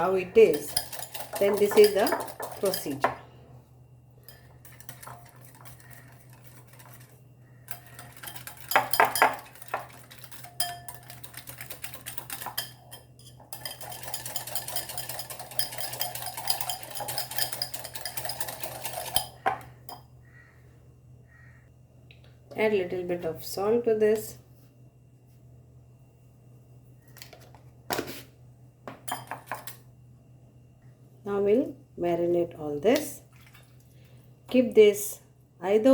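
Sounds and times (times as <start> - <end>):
spoon scraping a bowl: 0.3 - 3.2, 4.2 - 20.0.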